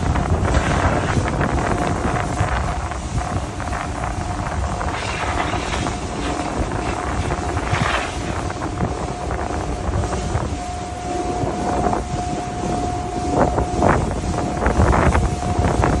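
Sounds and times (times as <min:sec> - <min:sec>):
low rumble: 0:00.0 - 0:16.0
steady whine: 0:00.0 - 0:16.0
compressed air hissing bursts: 0:04.8 - 0:08.5.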